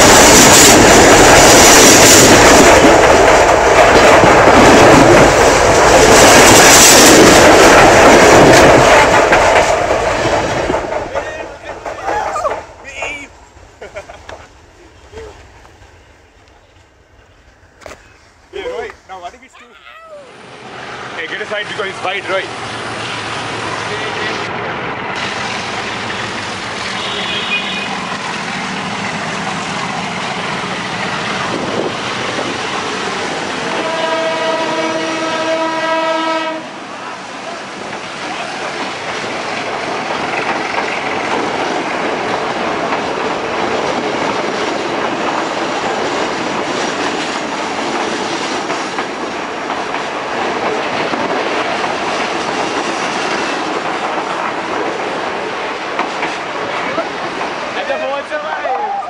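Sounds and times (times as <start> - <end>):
train wheels rumbling and clacking: 0.0 - 19.5, 20.4 - 59.0
train horn blast: 26.8 - 28.0, 33.7 - 36.8.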